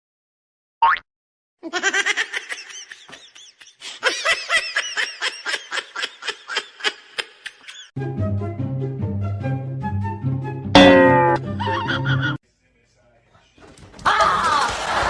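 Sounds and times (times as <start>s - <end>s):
high-pitched laughter: 1.6s - 7.9s, 11.6s - 12.4s, 14.0s - 15.0s.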